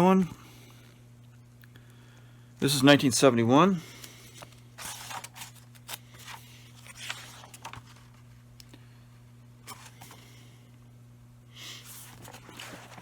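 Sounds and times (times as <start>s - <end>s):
faint low hum: 0.0s - 13.0s
book pages turning: 4.0s - 8.3s, 9.7s - 10.4s, 11.7s - 13.0s.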